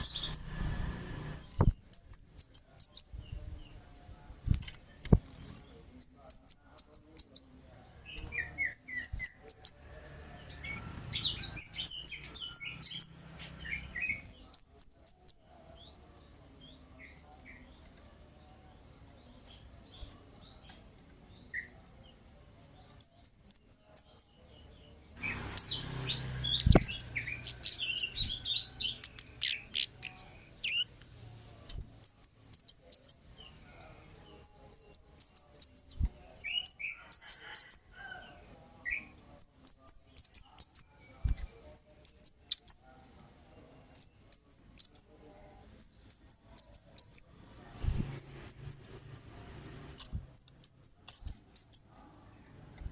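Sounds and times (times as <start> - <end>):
songbird chirping: 0.0 - 52.9.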